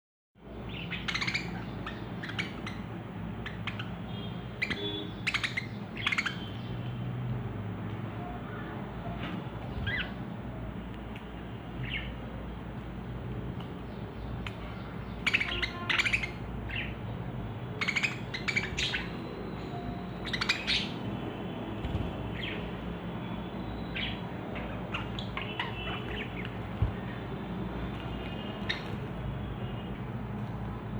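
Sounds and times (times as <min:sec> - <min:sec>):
budgerigars chirping and squawking: 0:00.6 - 0:06.8, 0:09.6 - 0:10.2, 0:11.8 - 0:12.3, 0:13.8 - 0:17.1, 0:17.7 - 0:21.1, 0:21.8 - 0:22.8, 0:23.6 - 0:27.2, 0:27.8 - 0:29.2.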